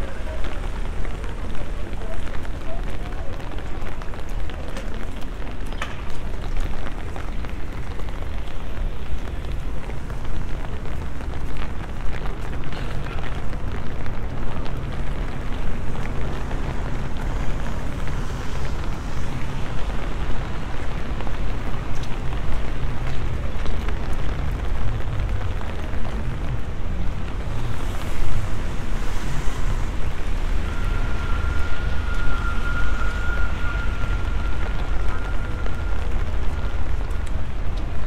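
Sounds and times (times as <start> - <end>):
rain hissing on pavement: 0.0 - 38.0
heavy low rumble: 16.1 - 38.0
thin steady high tone: 30.5 - 36.0.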